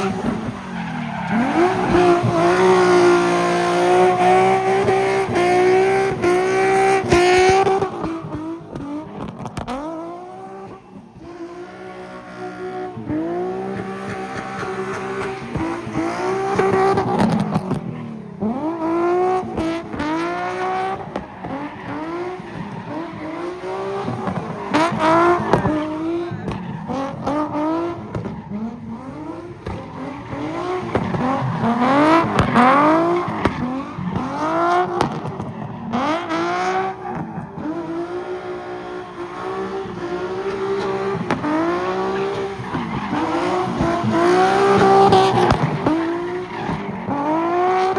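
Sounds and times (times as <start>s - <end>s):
car engine revving: 0.0s - 47.9s
tires squealing: 0.0s - 47.9s.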